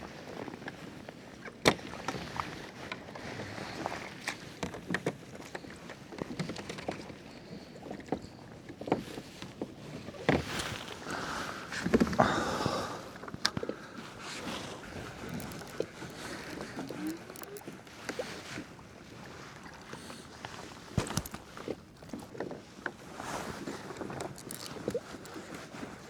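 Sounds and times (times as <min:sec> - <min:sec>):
water sloshing against kayak hull: 0:09.0 - 0:26.0.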